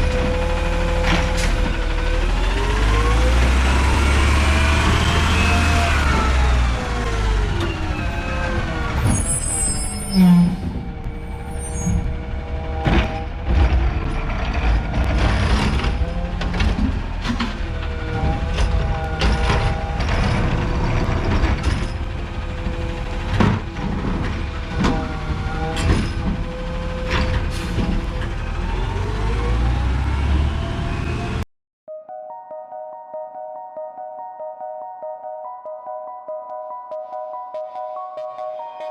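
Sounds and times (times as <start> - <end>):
garbage truck engine running: 0.0 - 31.4
clanks and knocks: 12.8 - 26.5.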